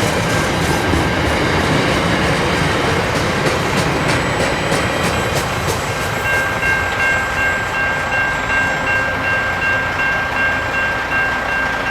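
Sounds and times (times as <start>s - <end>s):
train wheel clicks: 0.0s - 8.4s
freight train rumbling past: 0.0s - 11.9s.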